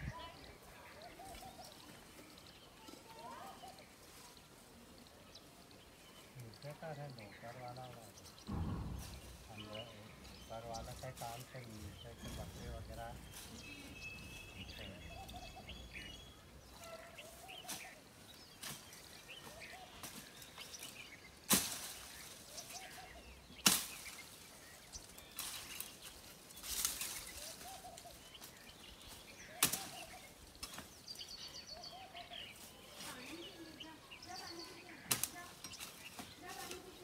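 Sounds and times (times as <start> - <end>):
birds chirping: 0.0 - 37.0
bird low call: 11.6 - 18.0.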